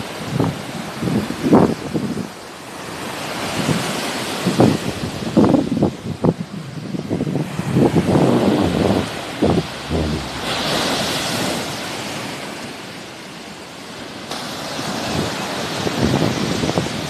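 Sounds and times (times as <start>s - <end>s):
sea waves washing onto shore: 0.0s - 17.0s
wind buffeting microphone: 5.1s - 11.6s.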